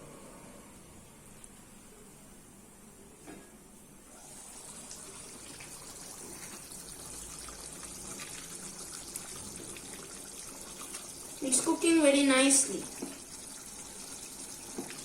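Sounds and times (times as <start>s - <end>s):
curry bubbling in a pot: 4.2s - 15.0s.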